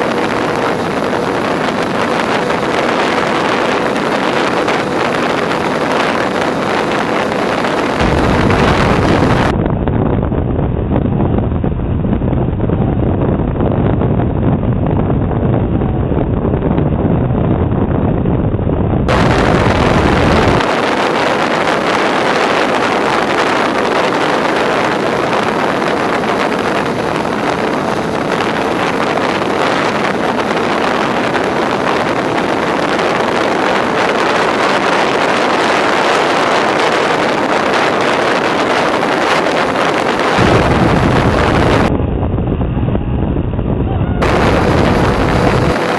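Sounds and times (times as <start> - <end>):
low wind buffeting: 0.0 - 45.9
wind rushing over microphone: 0.0 - 45.9.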